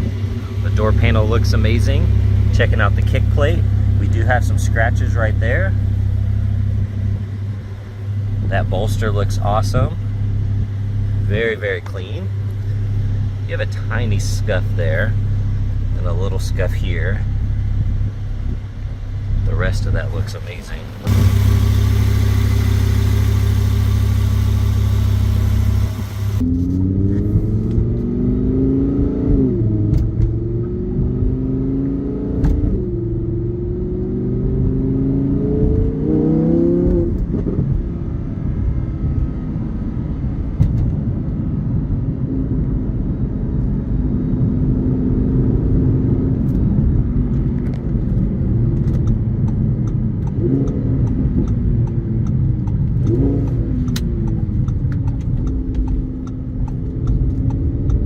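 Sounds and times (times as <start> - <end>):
car engine idling: 0.0 - 26.4
sports car engine revving: 20.7 - 37.3.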